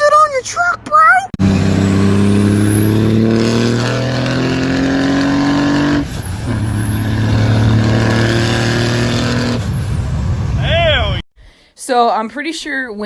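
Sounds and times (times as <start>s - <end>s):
truck engine accelerating: 1.3s - 10.7s.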